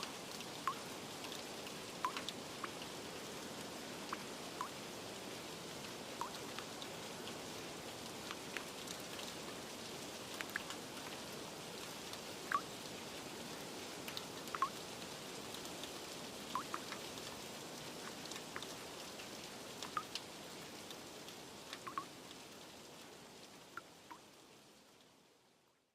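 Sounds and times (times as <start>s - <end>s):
rain hiss: 0.0s - 25.9s
drips plinking onto a surface: 16.6s - 17.0s.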